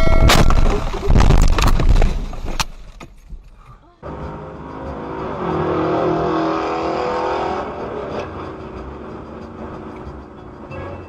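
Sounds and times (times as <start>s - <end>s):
vehicle engine droning: 4.0s - 10.8s.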